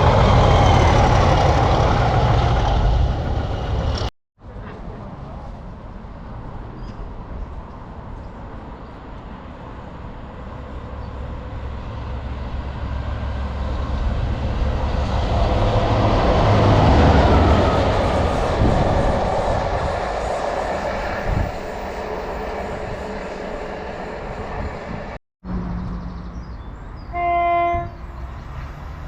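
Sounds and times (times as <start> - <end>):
diesel train engine hum: 0.0 - 4.1, 7.3 - 29.0
train wheels rushing: 0.0 - 4.1, 10.3 - 25.2.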